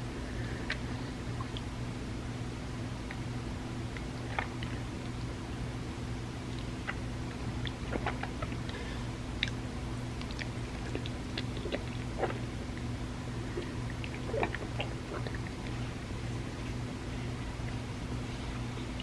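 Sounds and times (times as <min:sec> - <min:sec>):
steady low hum: 0:00.0 - 0:19.0
wet mouth eating sounds: 0:06.5 - 0:19.0.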